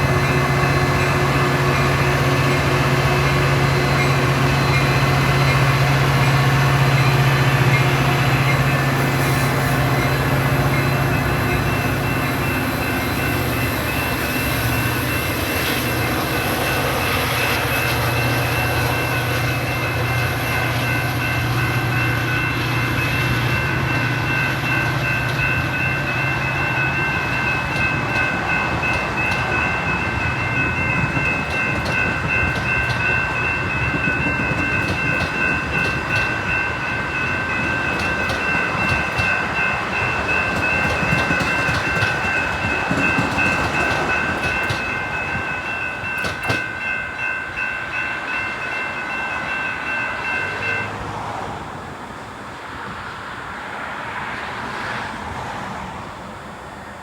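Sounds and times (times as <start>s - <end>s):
high-pitched ringing: 0.0s - 51.0s
diesel locomotive running: 0.0s - 57.0s
train wheels clattering over rail joints: 24.6s - 48.0s.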